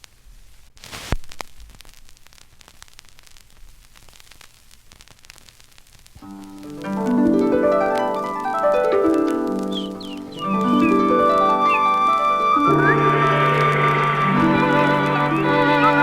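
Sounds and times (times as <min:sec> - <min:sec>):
harp glissando: 0:06.8 - 0:16.0.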